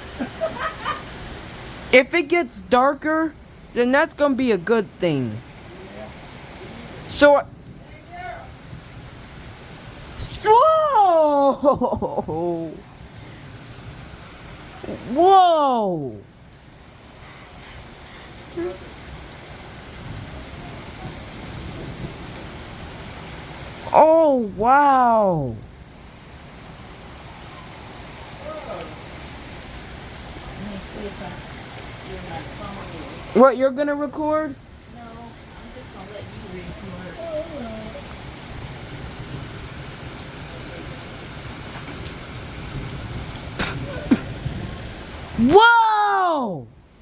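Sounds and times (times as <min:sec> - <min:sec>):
heavy rain pouring: 0:00.0 - 0:47.0
low rumble of thunder: 0:19.1 - 0:23.5.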